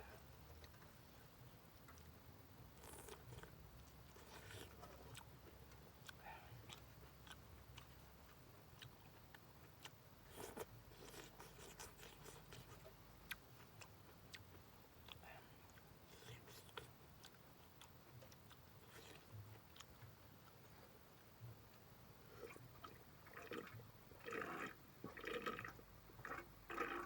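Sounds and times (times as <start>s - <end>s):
person chewing food: 1.8s - 27.0s.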